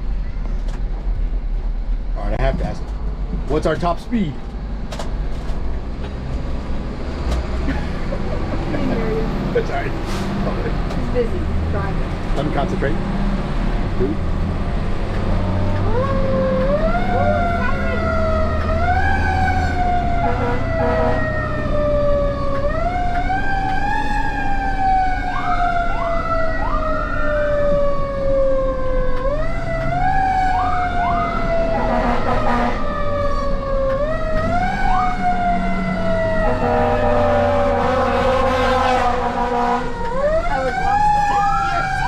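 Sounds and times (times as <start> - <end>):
truck engine rumble: 0.0 - 42.0
mechanical fire engine siren: 15.3 - 42.0.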